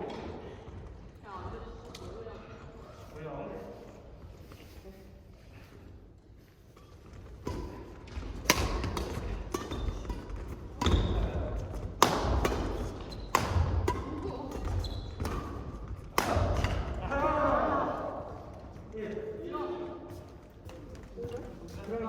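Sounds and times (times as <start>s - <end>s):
rackets striking shuttlecock: 7.4s - 16.9s.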